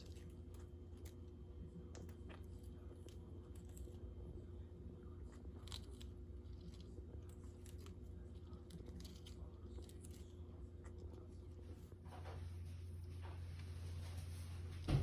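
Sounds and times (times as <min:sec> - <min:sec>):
bird beak crunching food: 0:00.0 - 0:11.8
steady low hum: 0:00.0 - 0:15.0.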